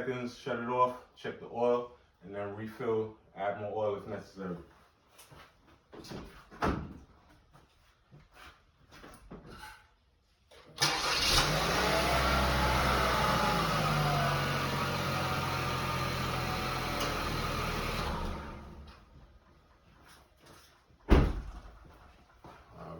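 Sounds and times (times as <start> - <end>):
car engine starting and idling: 10.8 - 19.1.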